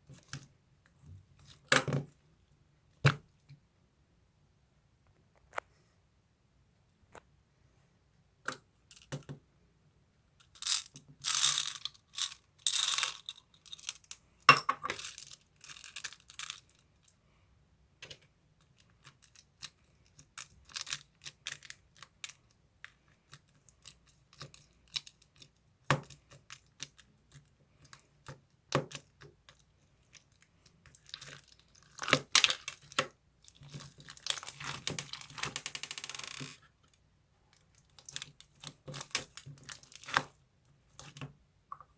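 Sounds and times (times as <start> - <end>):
crinkling and rustling: 26.2 - 41.4.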